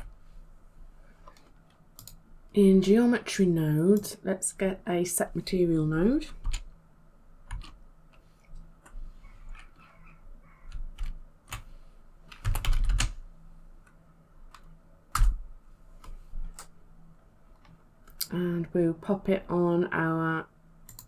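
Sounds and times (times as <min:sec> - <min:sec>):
keyboard typing: 0:01.3 - 0:02.2, 0:07.5 - 0:07.8, 0:10.6 - 0:11.7, 0:12.3 - 0:13.2.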